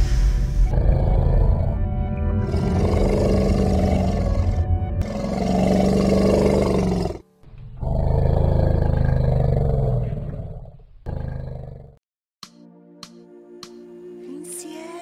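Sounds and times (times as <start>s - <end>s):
deep roars: 0.6s - 7.2s, 7.8s - 12.0s.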